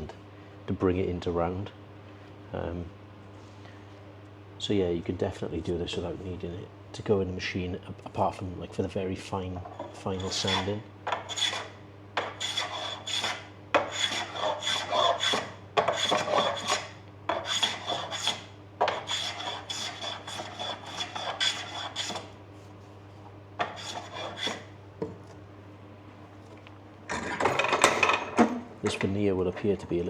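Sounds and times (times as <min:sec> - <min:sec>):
steady low hum: 0:00.0 - 0:30.0
hand plane scraping wood: 0:09.7 - 0:22.3, 0:23.6 - 0:24.7.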